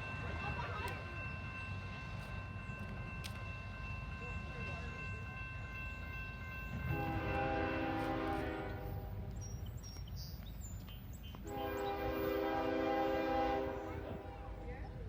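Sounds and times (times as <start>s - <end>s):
low train rumble: 0.0s - 15.0s
locomotive air horn blasts: 6.9s - 9.0s, 11.4s - 14.3s.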